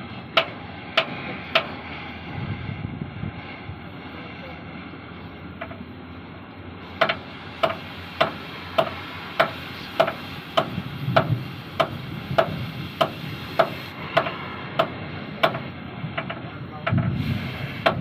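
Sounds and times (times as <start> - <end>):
hammer blows on metal: 7.0 - 18.0.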